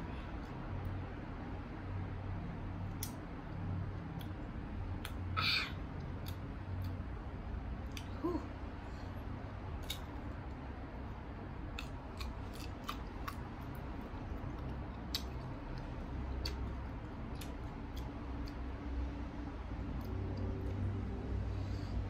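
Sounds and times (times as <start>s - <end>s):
crisp crunches of chewing mango: 11.7s - 18.6s.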